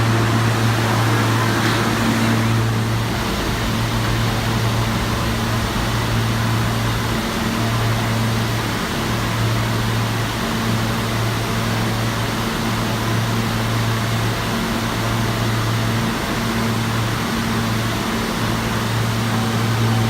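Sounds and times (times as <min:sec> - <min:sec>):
low hum: 0:00.0 - 0:11.8
subway train rumble and hiss: 0:00.0 - 0:20.0.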